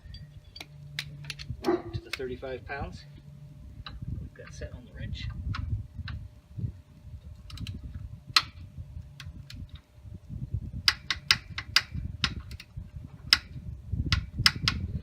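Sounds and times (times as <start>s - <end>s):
torque wrench clicking: 10.8s - 12.7s, 13.3s - 15.0s.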